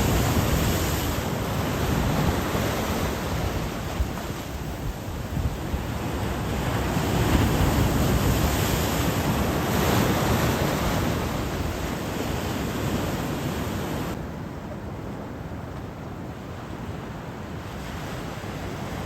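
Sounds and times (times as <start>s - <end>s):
waves breaking on beach: 0.0s - 14.2s, 14.9s - 19.0s
wind on microphone: 0.0s - 14.2s.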